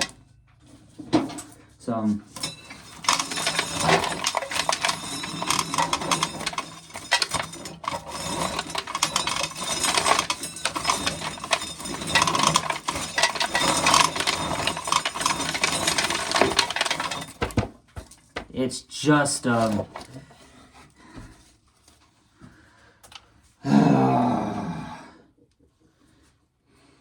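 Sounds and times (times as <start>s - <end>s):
corn kernels rattling in sheller: 2.4s - 18.2s, 19.2s - 20.2s.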